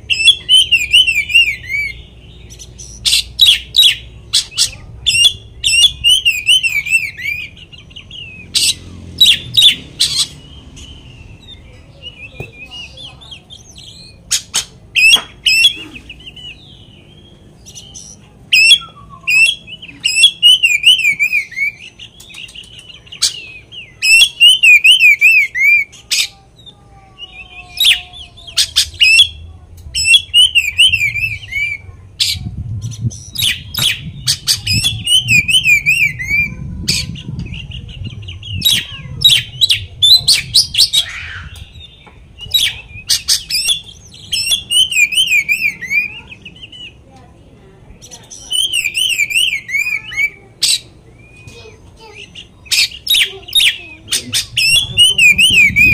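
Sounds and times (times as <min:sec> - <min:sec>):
songbird singing varied song: 0:00.0 - 0:47.2, 0:47.8 - 0:55.9
low rumble: 0:28.2 - 0:43.1, 0:54.0 - 0:55.9.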